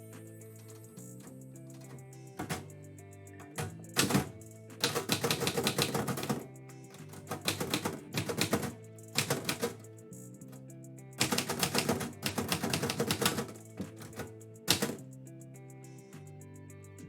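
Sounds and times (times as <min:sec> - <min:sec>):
background music with low tones: 0:00.0 - 0:17.0
typewriter keys typing: 0:01.8 - 0:02.7, 0:03.4 - 0:09.8, 0:11.2 - 0:15.0.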